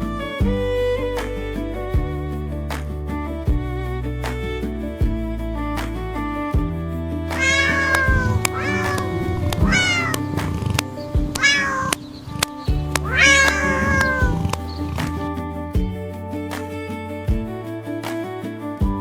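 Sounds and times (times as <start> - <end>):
background music: 0.0 - 19.0
cat meowing: 7.4 - 10.3, 11.3 - 14.7.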